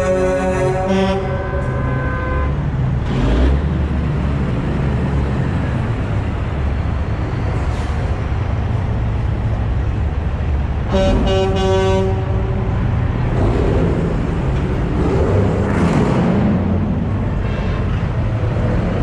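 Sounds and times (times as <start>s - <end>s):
truck air horns: 0.0s - 2.7s, 10.8s - 12.9s, 17.4s - 18.2s
diesel engines running: 0.0s - 19.0s.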